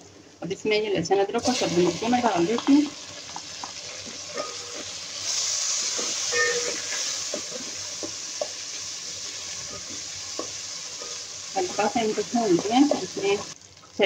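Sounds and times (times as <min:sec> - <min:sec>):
onions sizzling in hot fat: 0:01.4 - 0:14.0
wooden spatula stirring and knocking pot: 0:05.8 - 0:13.5.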